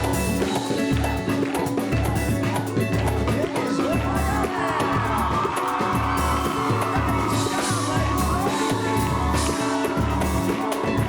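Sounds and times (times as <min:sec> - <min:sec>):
samba band playing: 0:00.0 - 0:11.0
audience cheering and whooping: 0:03.6 - 0:11.0.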